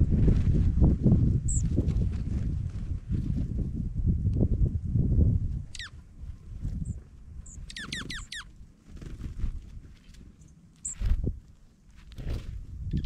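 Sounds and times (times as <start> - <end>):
bird calls falling notes: 7.5 - 8.5.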